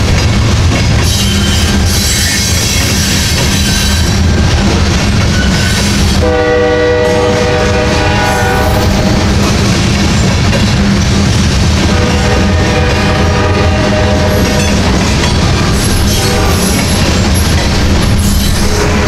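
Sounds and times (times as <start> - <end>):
freight train rumble and clatter: 0.0 - 19.0
train air horn chord: 6.2 - 9.2, 11.9 - 14.6.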